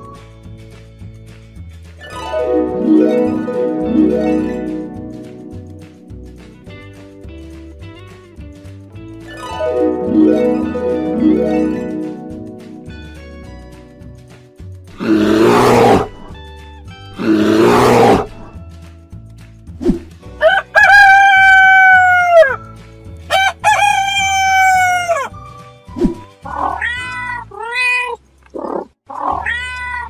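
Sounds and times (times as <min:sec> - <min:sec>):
background music with steady beat: 0:00.0 - 0:26.5
rooster crowing: 0:20.4 - 0:22.6, 0:23.3 - 0:25.3
cat meowing: 0:26.5 - 0:28.2, 0:29.1 - 0:30.0.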